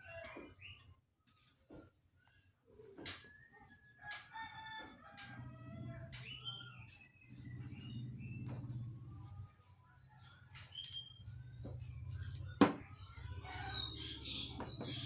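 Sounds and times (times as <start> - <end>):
small birds chirping: 5.9 - 15.0.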